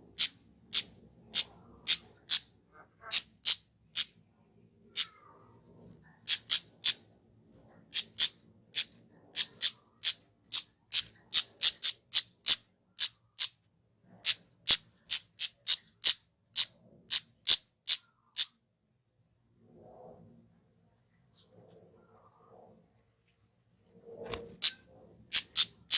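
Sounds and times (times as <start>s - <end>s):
bird calling high sharp notes: 6.3s - 7.0s, 24.6s - 25.9s.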